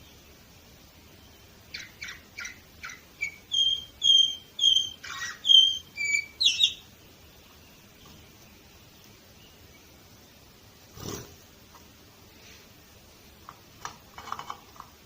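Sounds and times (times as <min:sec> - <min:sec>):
canary singing: 0:01.1 - 0:10.0.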